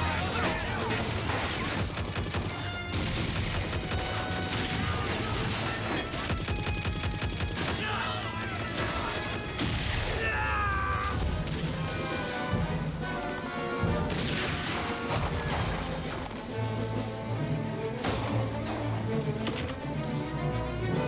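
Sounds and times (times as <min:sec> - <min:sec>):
gunfire: 0:00.0 - 0:11.9, 0:14.0 - 0:16.5, 0:18.0 - 0:18.8
dramatic background music: 0:00.0 - 0:21.0.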